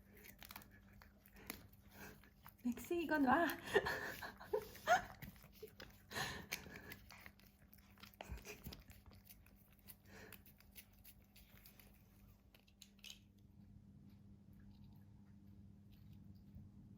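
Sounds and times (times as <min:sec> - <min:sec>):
cat licking and smacking: 0:00.0 - 0:13.1.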